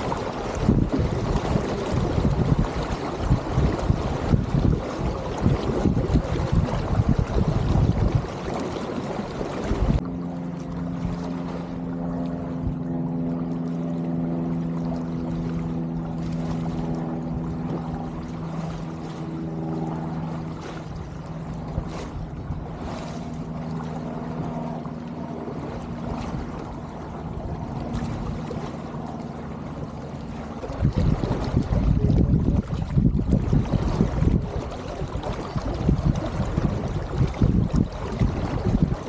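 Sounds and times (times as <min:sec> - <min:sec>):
wind rushing over microphone: 0:00.0 - 0:10.0, 0:30.5 - 0:39.0
steady low hum: 0:00.0 - 0:39.0
water trickling along hull: 0:00.0 - 0:39.0.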